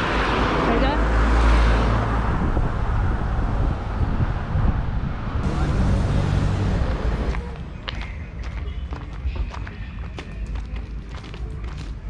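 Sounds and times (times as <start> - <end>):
car road noise rumble: 0.0 - 12.0
wind buffeting microphone: 2.0 - 5.5.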